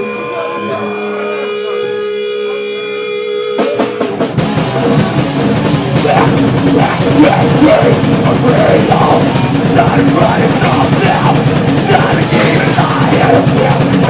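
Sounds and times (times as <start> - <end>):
heavy metal band playing: 0.0 - 14.0
drum hits: 3.6 - 14.0.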